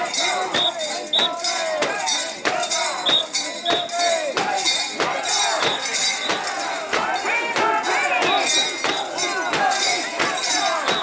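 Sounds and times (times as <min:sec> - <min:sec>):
bells jangling: 0:00.0 - 0:11.0
people chanting: 0:00.0 - 0:11.0.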